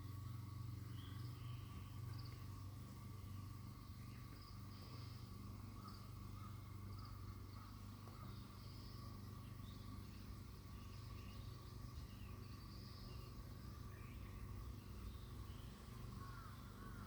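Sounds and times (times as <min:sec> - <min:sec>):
insect chirping trill: 0:00.0 - 0:17.0
low steady hum: 0:00.0 - 0:17.0.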